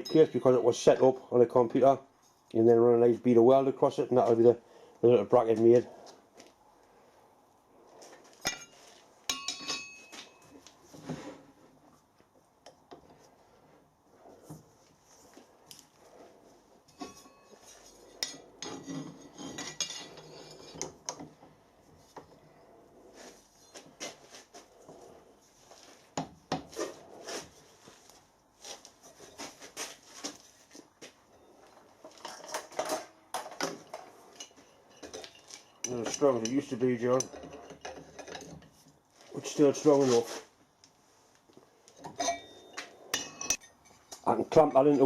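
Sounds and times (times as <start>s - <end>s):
steel plate clinking and scraping: 0.0s - 1.2s, 8.4s - 10.6s, 16.8s - 21.3s, 23.4s - 24.2s, 31.4s - 38.8s, 42.0s - 45.0s.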